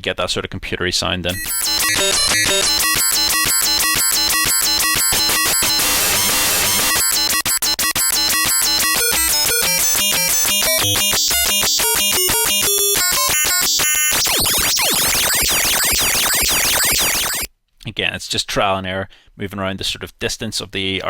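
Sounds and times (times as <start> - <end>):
distorted arpeggiated synth: 1.3 - 17.5.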